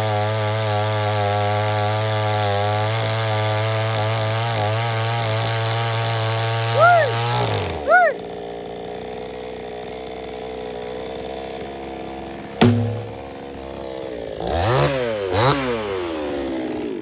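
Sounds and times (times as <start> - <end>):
chainsaw idling and revving: 0.0 - 17.0
sharp knock: 12.6 - 13.2.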